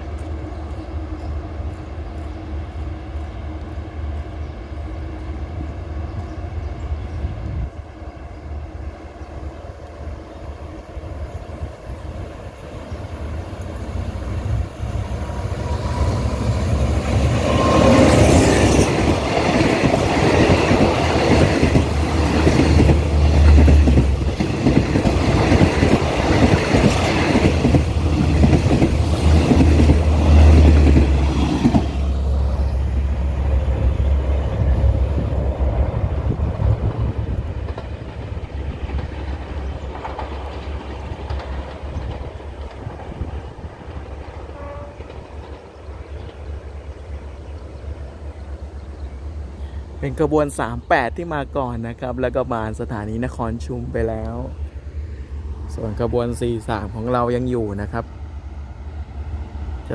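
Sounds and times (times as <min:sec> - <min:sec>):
train engine hum: 0:00.0 - 0:59.9
train wheels clattering on rails: 0:11.2 - 0:32.6, 0:33.4 - 0:46.9.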